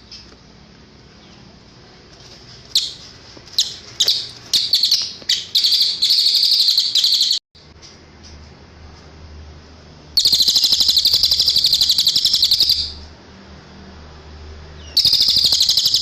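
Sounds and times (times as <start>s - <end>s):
bird chirping and trilling: 2.7s - 7.4s, 10.1s - 13.1s, 14.8s - 16.0s.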